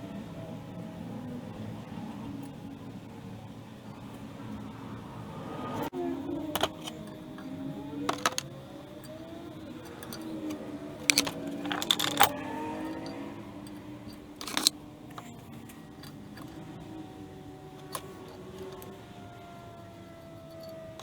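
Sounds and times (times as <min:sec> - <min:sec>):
metal tools clinking: 0:06.5 - 0:16.8, 0:17.6 - 0:19.2, 0:20.1 - 0:21.0.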